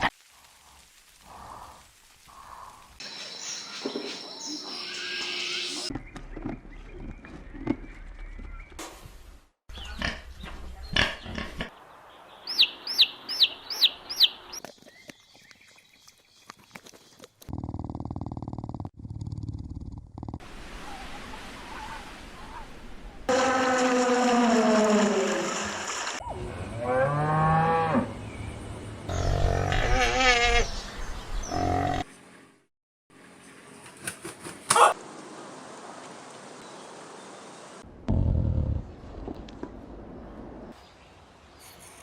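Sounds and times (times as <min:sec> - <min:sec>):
animal chirping: 0:12.5 - 0:14.6.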